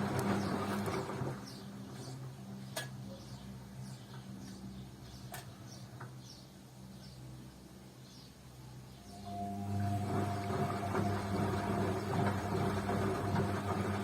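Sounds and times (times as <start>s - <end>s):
washing machine humming: 0.0s - 2.6s, 9.1s - 14.0s.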